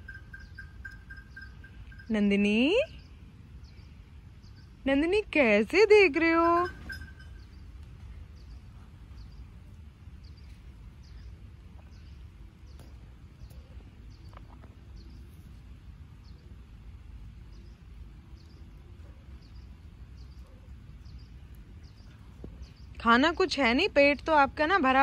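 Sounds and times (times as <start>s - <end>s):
bird chirping high: 0.0s - 3.1s
low steady rumble: 0.0s - 25.0s.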